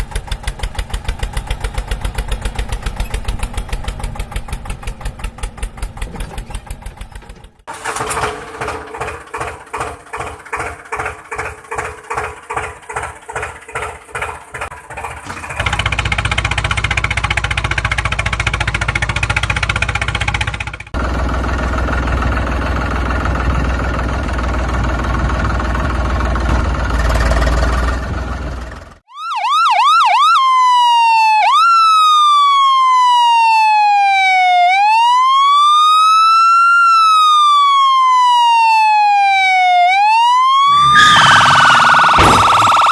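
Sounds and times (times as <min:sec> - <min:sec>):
rumbling engine: 0:00.0 - 0:29.0, 0:40.7 - 0:42.9
emergency siren wailing: 0:29.1 - 0:42.9.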